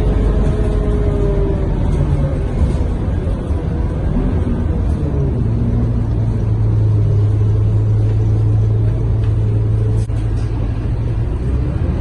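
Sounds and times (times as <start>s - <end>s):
bus diesel engine rumble: 0.0s - 12.0s.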